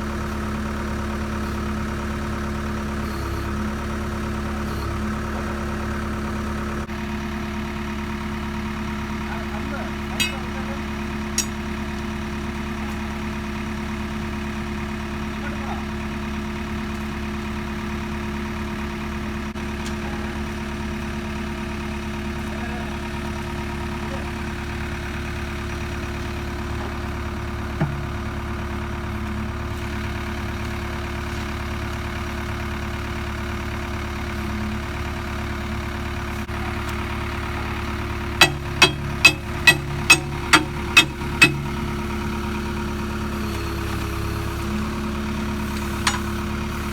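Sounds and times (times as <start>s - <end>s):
diesel engine idling: 0.0s - 46.9s
sharp knocks: 38.4s - 41.8s.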